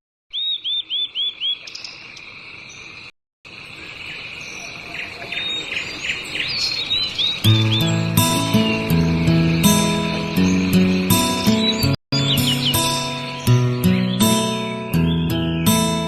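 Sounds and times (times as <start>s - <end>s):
bird chirps: 0.3s - 16.0s
music: 7.4s - 16.0s.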